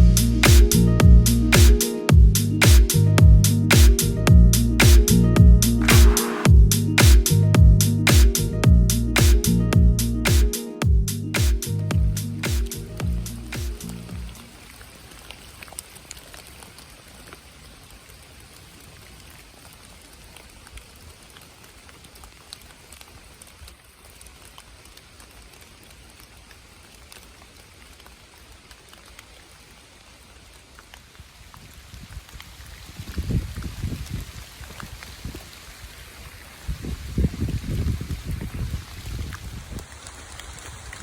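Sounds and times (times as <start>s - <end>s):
low thumps: 0.0s - 14.4s
steady rain falling: 10.9s - 41.0s.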